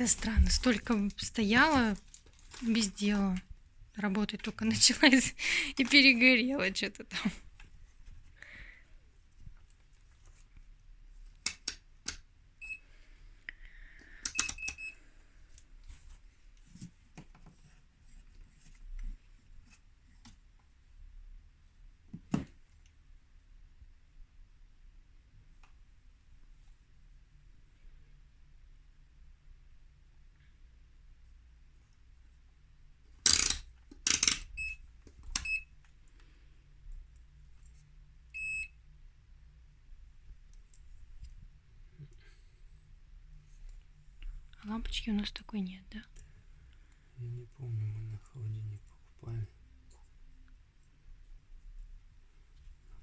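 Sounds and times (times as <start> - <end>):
control panel beeping: 14.3 - 14.9.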